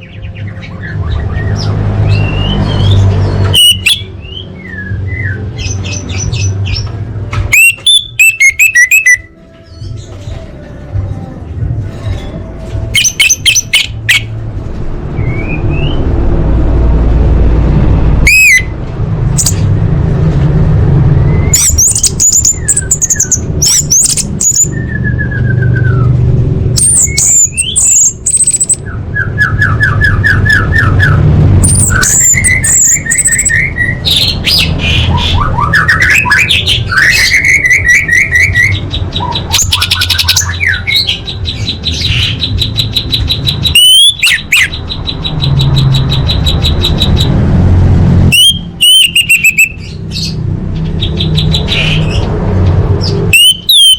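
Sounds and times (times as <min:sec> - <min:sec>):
thrush calling: 0:00.8 - 0:04.4, 0:07.5 - 0:09.3, 0:12.9 - 0:14.4, 0:26.8 - 0:47.4, 0:48.3 - 0:50.4, 0:53.0 - 0:53.9
steady low rumble: 0:14.3 - 0:29.0.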